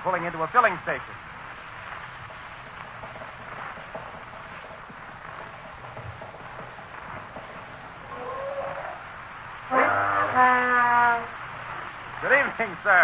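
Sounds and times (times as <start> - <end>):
recording hiss: 0.0 - 13.0.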